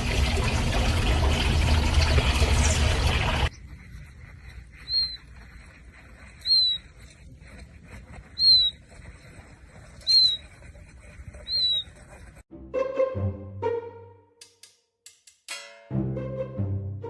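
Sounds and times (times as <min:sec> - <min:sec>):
animal's high whistled call: 0:04.8 - 0:05.3, 0:06.4 - 0:06.8, 0:08.4 - 0:08.8, 0:10.0 - 0:10.4, 0:11.4 - 0:11.9.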